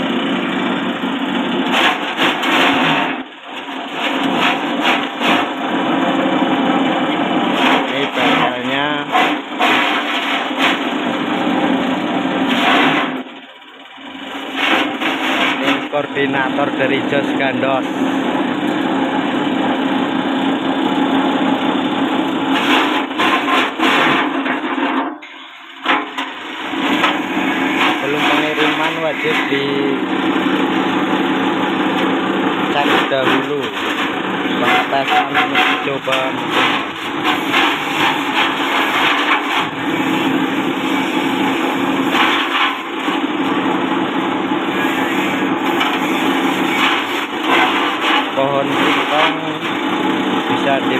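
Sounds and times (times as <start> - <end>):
chopper cutting plant stalks: 1.6 - 5.8, 7.5 - 11.1, 12.4 - 13.3, 14.5 - 18.1, 22.5 - 24.6, 25.9 - 31.0, 31.6 - 43.8, 44.7 - 50.9
electric motor humming: 26.4 - 50.7.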